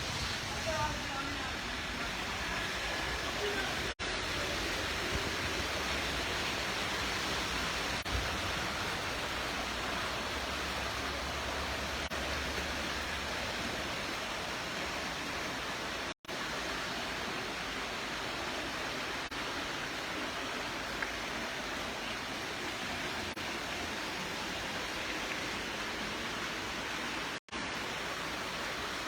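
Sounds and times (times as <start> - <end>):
floodwater rushing: 0.0 - 29.0.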